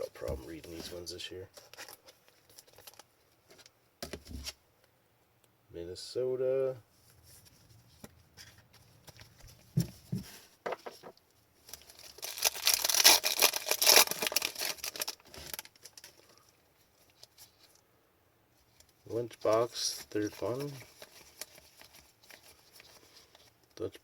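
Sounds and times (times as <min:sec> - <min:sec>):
soft handling sounds: 0:00.0 - 0:04.6, 0:06.8 - 0:12.7, 0:13.5 - 0:17.9, 0:18.5 - 0:24.0
foil wrapper tearing and crinkling: 0:11.7 - 0:16.3, 0:19.7 - 0:23.4.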